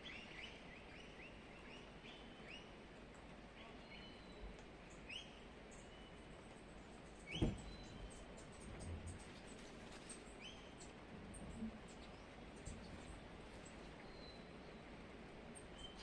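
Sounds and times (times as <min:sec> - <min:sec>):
soft knock: 0:07.3 - 0:07.7.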